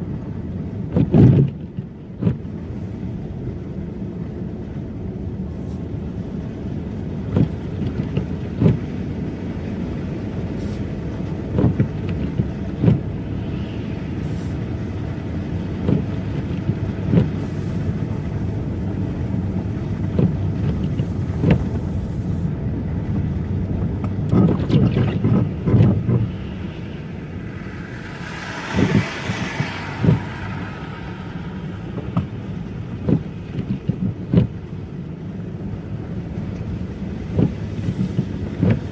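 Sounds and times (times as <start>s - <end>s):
car road rumble: 0.0s - 38.9s
rushing hiss: 13.2s - 15.0s, 17.3s - 22.5s, 25.3s - 33.6s.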